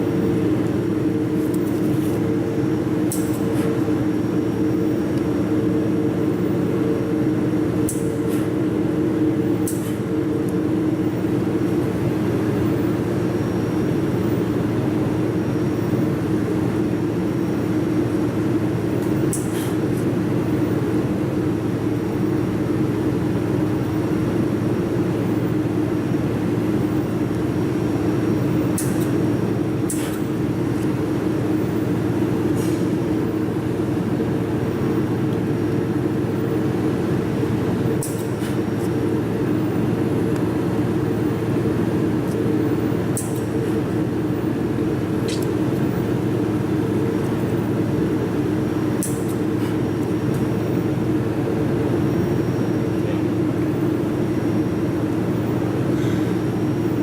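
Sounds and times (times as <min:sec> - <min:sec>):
low machine hum: 0:00.0 - 0:57.0
sharp click: 0:09.6 - 0:10.0, 0:43.1 - 0:43.5, 0:45.3 - 0:45.6, 0:49.0 - 0:49.4.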